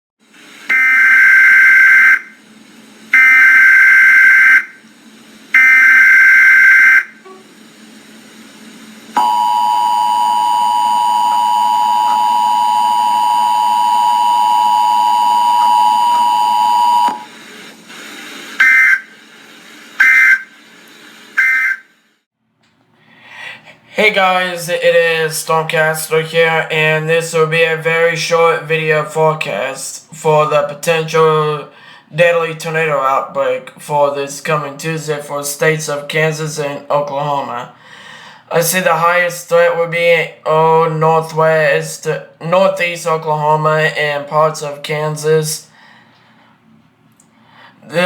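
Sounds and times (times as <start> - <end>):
two-tone attention signal: 3.2 - 4.7, 5.6 - 7.2, 9.2 - 17.3
data burst screeches: 5.6 - 7.2, 18.5 - 19.2, 20.0 - 20.6, 21.4 - 21.9.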